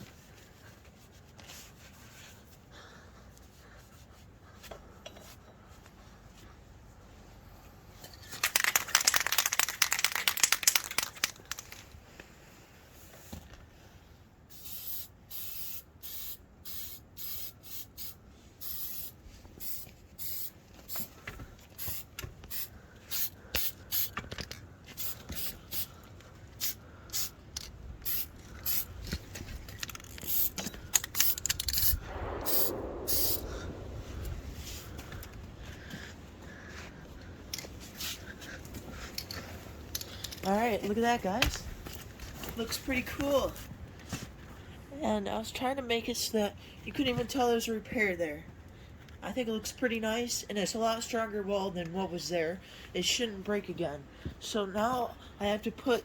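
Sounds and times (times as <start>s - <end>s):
spray paint hissing: 14.5s - 21.1s, 21.8s - 24.2s, 24.9s - 25.9s, 26.6s - 27.4s, 28.0s - 29.0s, 30.0s - 33.4s.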